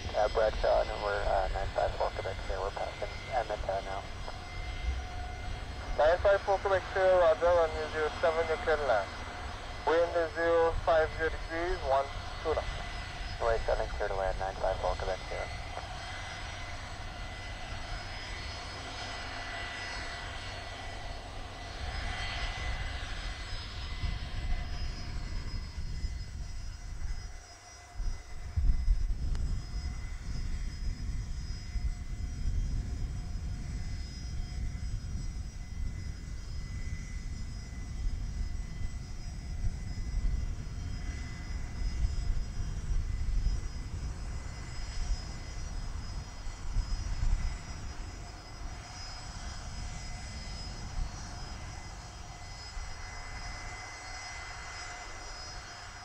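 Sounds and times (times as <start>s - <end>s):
aircraft engine whine: 0.0s - 56.0s
deep uneven aircraft rumble: 0.0s - 56.0s.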